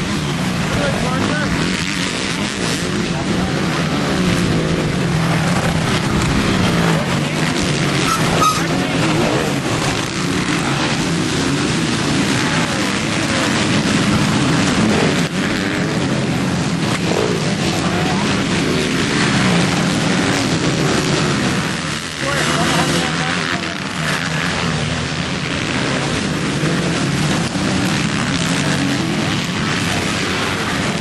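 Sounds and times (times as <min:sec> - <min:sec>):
motocross bikes revving: 0:00.0 - 0:31.0.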